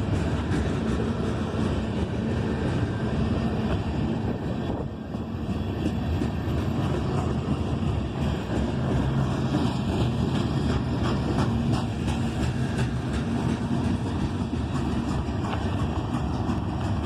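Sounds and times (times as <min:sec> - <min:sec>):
freight train rumbling: 0:00.0 - 0:17.0.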